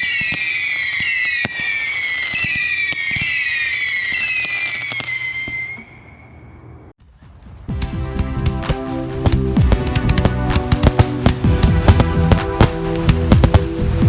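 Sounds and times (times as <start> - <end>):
firework pops: 0.0 - 3.4, 7.8 - 13.7
whistling firework missiles: 0.0 - 6.7, 9.2 - 13.9.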